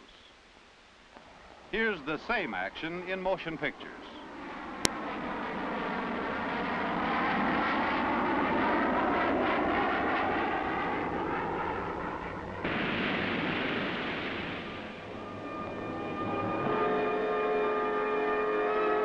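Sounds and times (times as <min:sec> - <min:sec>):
steady hiss: 0:00.0 - 0:04.3, 0:12.7 - 0:15.1
jet engine whine: 0:01.3 - 0:19.0.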